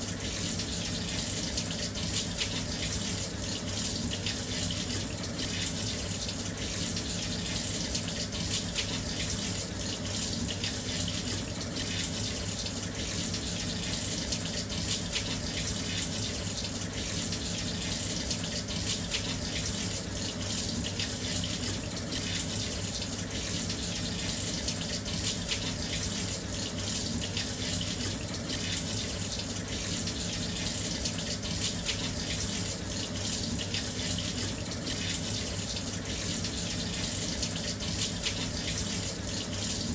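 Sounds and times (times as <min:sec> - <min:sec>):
water pouring into washing machine: 0:00.0 - 0:39.9.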